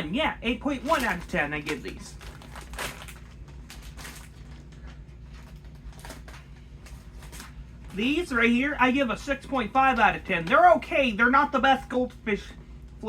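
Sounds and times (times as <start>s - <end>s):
snack bag crinkling: 0.8s - 7.6s.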